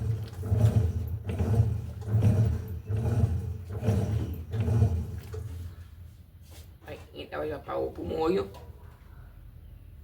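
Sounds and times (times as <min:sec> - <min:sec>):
washing machine agitator swishing: 0:00.0 - 0:06.8
washing machine motor hum: 0:00.0 - 0:08.8.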